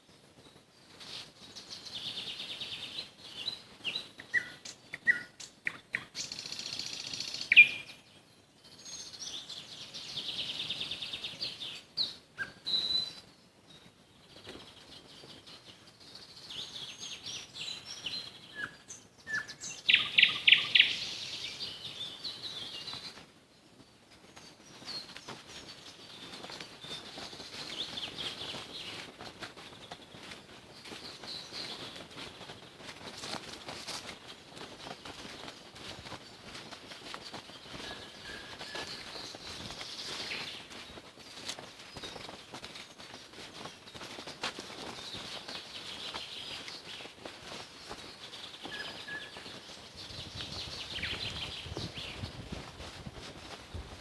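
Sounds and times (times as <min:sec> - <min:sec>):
nightingale singing: 0:01.5 - 0:23.2, 0:35.4 - 0:42.4, 0:44.9 - 0:52.4.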